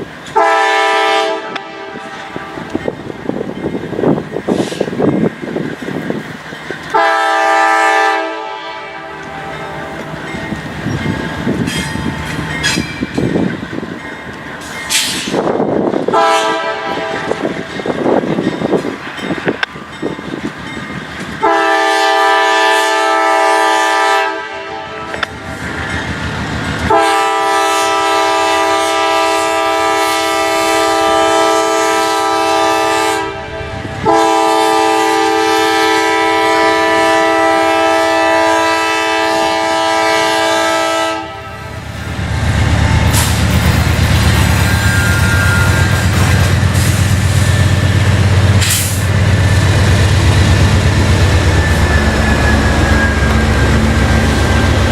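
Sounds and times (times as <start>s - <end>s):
train passing rumble: 0.0s - 54.9s
locomotive air horn blasts: 0.3s - 2.7s, 6.9s - 10.2s, 16.1s - 17.6s, 21.4s - 25.3s, 26.8s - 41.8s, 44.6s - 47.0s.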